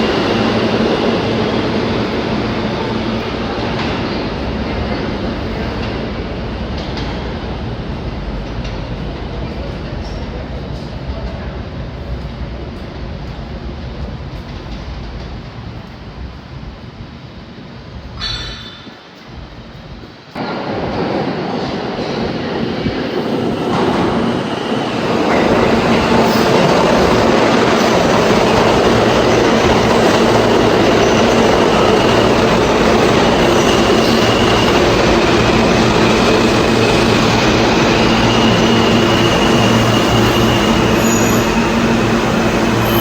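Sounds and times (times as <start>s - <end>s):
subway train rumble and rattle: 0.0s - 43.0s
faint high wheel squeal: 38.1s - 43.0s.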